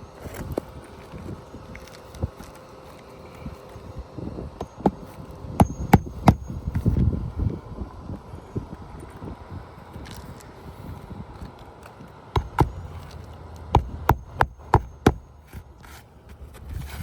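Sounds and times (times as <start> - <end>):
hammer driving nails into shingles: 5.6 - 6.4, 12.4 - 12.8, 13.7 - 15.3.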